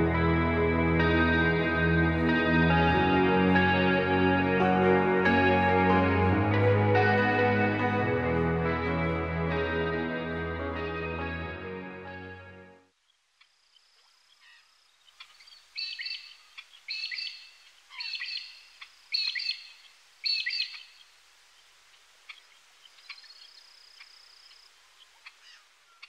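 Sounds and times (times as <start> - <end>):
faint steady hiss: 12.7 - 26.0
birds chirping: 13.1 - 26.0.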